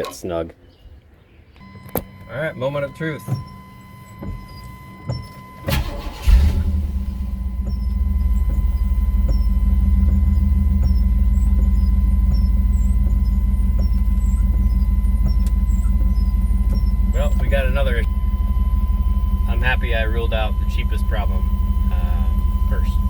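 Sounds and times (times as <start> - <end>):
truck engine cranking and idling: 1.5 - 23.0.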